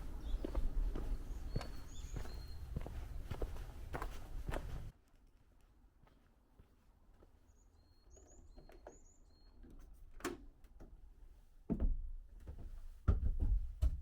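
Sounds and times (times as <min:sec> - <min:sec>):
small bird calling: 0:00.2 - 0:03.3.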